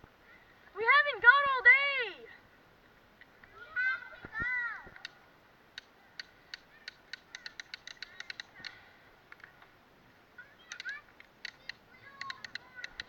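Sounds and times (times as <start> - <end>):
faint bird calls: 5.9 - 9.6.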